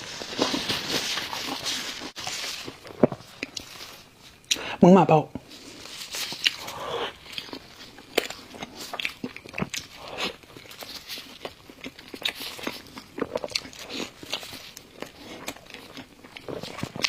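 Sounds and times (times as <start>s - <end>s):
chewing crunchy food: 5.4s - 17.0s.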